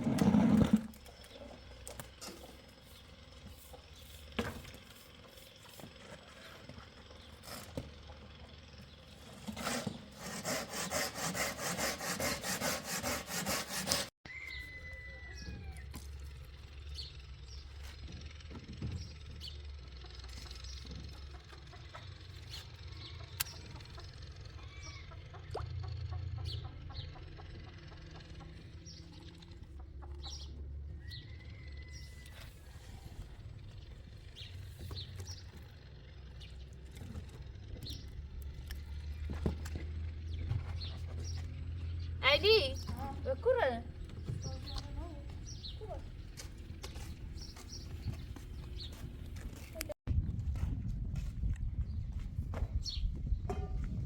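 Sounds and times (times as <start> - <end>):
sawing wood: 9.2 - 14.2.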